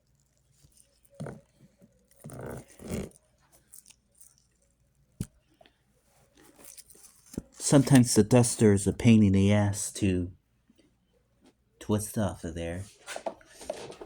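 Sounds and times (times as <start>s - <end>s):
plastic scraping rub: 1.1s - 3.2s, 13.0s - 14.0s.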